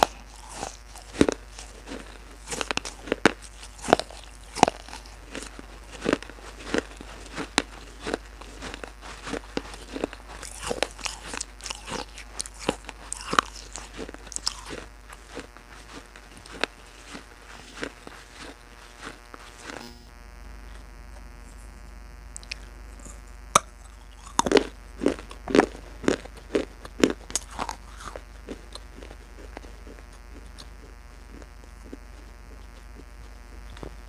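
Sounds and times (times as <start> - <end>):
sharp crunching: 0.0 - 20.0, 20.6 - 34.0
steady low hum: 0.0 - 34.0.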